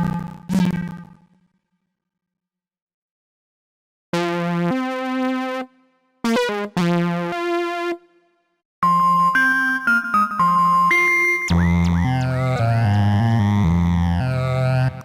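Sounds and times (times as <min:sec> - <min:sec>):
high steady synth tone: 0:10.2 - 0:13.0
buzzy synthesizer notes: 0:11.5 - 0:15.0.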